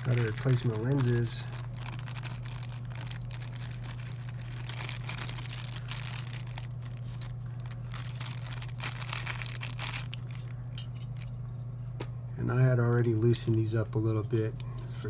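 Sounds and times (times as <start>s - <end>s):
packaging crinkling and rustling: 0.0s - 11.4s
low electrical hum: 0.0s - 15.0s.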